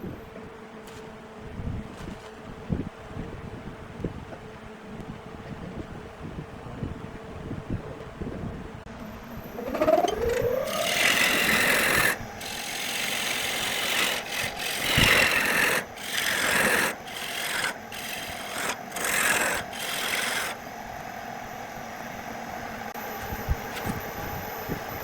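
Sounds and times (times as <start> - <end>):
wood rasping with abrasive: 9.6 - 20.6.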